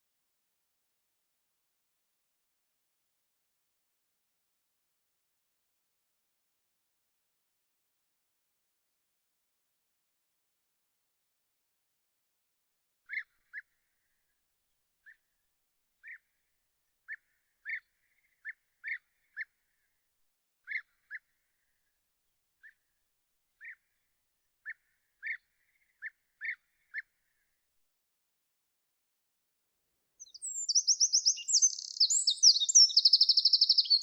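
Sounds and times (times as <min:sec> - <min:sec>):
bird calling with echo: 0:30.2 - 0:34.0.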